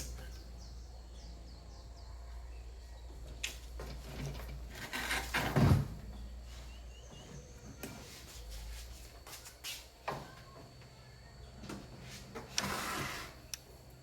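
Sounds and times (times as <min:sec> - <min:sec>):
steady low hum: 0:00.0 - 0:14.0
knocks and rustling: 0:03.2 - 0:06.3.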